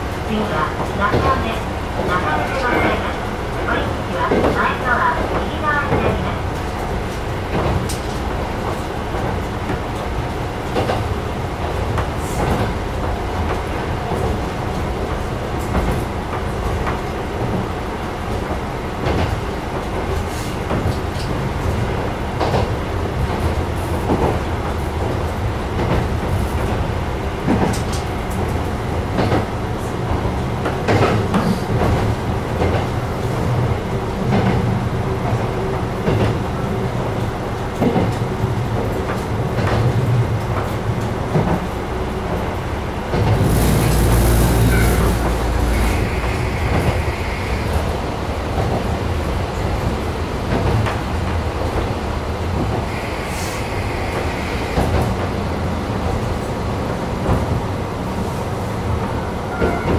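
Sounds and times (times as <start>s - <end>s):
railcar engine running: 0.0s - 59.9s.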